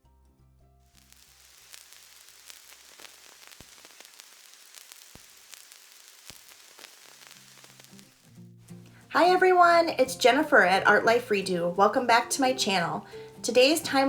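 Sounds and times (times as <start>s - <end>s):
faint static hiss: 0.9s - 10.6s
crackling clicks: 1.0s - 9.0s.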